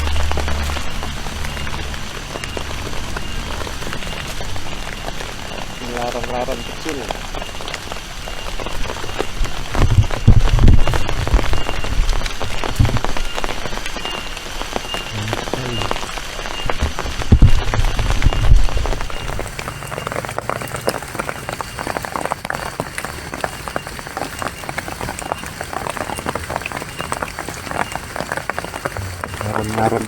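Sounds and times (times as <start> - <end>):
rain patter: 0.0 - 30.0
heavy low rumbles: 28.8 - 30.0.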